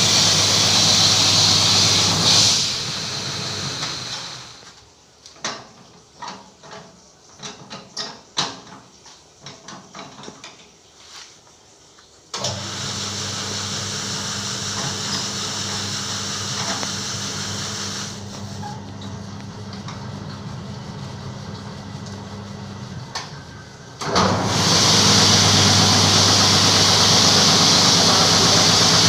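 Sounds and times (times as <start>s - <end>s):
carpet-washing machine running: 0.0s - 4.6s, 12.4s - 29.0s.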